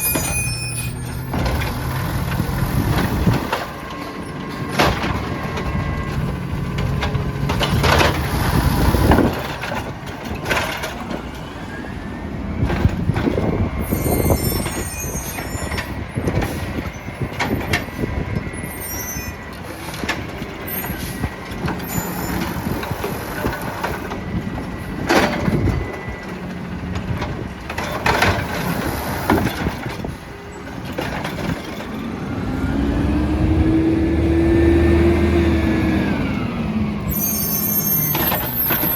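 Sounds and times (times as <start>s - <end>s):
garbage truck engine: 0.0s - 38.9s.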